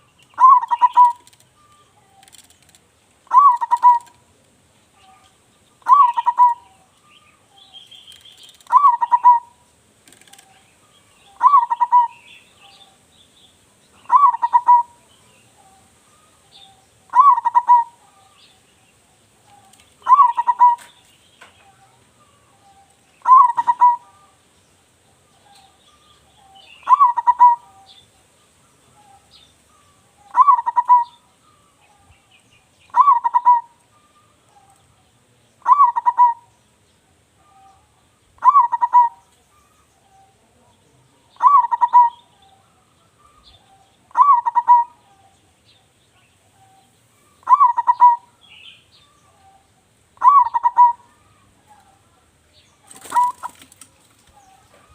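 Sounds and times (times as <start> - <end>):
dove cooing: 0.0 - 4.2, 5.0 - 6.9, 7.6 - 13.0, 14.0 - 18.4, 19.5 - 21.0, 21.6 - 24.4, 25.2 - 28.0, 28.9 - 32.1, 32.9 - 34.8, 35.6 - 36.5, 37.4 - 45.3, 46.5 - 48.4, 50.2 - 52.2, 52.8 - 54.9
small birds chirping: 0.0 - 54.9.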